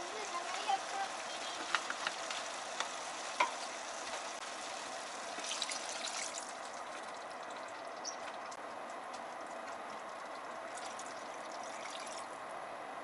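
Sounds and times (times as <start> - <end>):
food sizzling in a pot: 0.0 - 6.4
water pouring: 3.4 - 8.6, 9.3 - 12.4.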